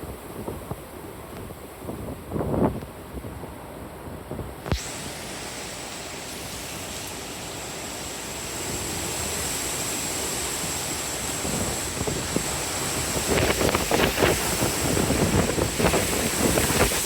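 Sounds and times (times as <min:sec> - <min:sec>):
wind buffeting microphone: 0:00.0 - 0:05.0, 0:08.6 - 0:17.0
hurricane wind and rain: 0:00.0 - 0:17.0.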